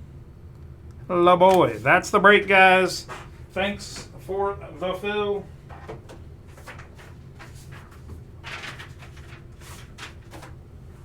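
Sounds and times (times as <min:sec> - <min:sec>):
low steady hum: 0:00.0 - 0:11.0
cards and plastic packaging handled: 0:06.5 - 0:10.6.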